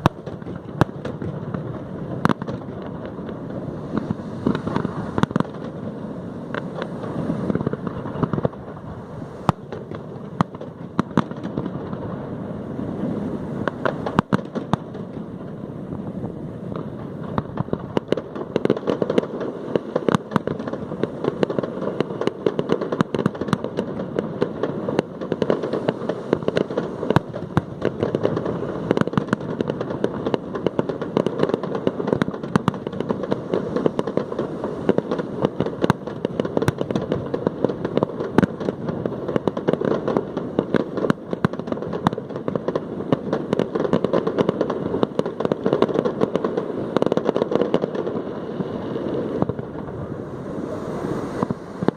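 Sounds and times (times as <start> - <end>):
fireworks crackling and banging: 0.0 - 51.9.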